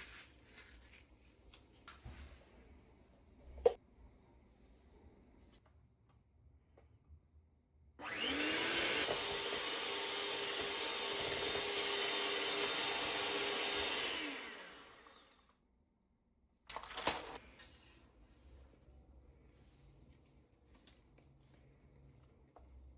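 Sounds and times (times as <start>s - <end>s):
kitchen blender running: 8.0s - 15.5s.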